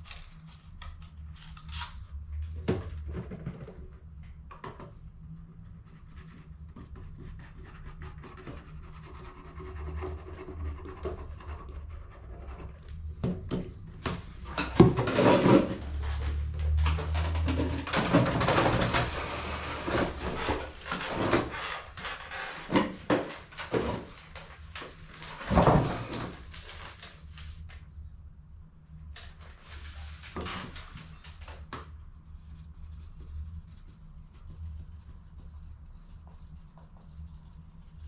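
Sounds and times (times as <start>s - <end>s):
low hum: 26.3s - 38.0s.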